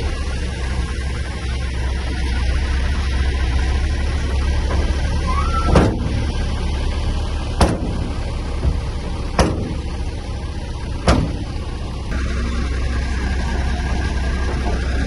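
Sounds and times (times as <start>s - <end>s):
diesel engine running: 0.0s - 15.0s
sharp knocks: 5.6s - 6.2s, 7.6s - 9.9s, 11.0s - 11.5s.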